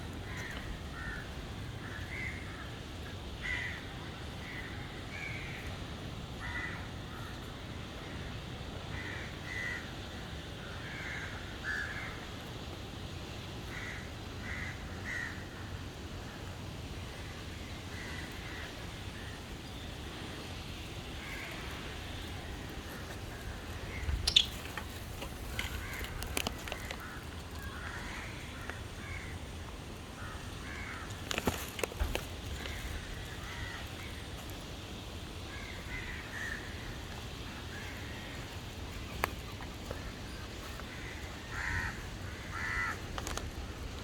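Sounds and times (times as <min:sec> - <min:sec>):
birds calling: 0:17.1 - 0:43.9.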